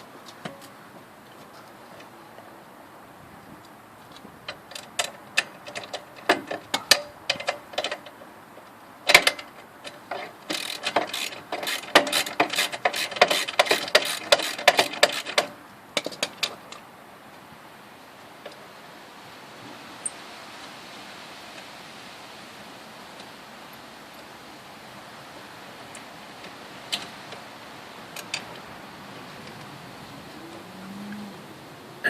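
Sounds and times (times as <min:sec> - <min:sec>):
ratchet wrench clicking: 0:10.1 - 0:15.5.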